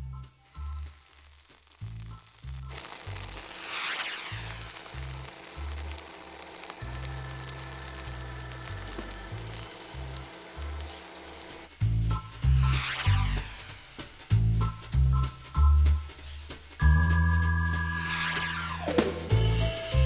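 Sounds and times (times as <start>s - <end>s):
onions sizzling in hot oil: 0.4s - 11.7s.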